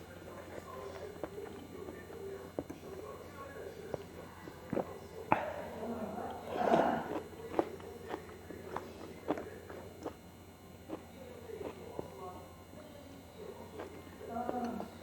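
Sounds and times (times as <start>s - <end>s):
wet chewing clicks and smacks: 0.2s - 3.0s, 3.8s - 5.5s, 7.1s - 10.2s, 10.8s - 12.2s, 13.5s - 15.0s.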